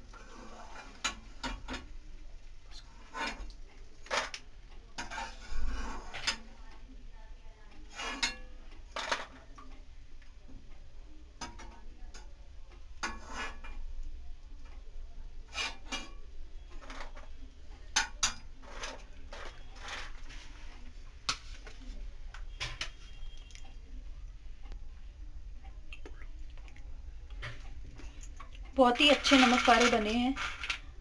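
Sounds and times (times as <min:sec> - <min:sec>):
crisp snacks rattling in a dish: 0:28.8 - 0:31.0.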